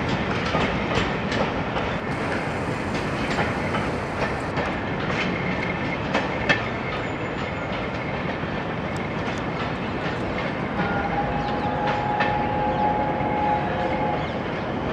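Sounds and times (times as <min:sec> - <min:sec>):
train wheels clicking over rail joints: 0:00.0 - 0:12.8
steady whine: 0:02.0 - 0:04.8.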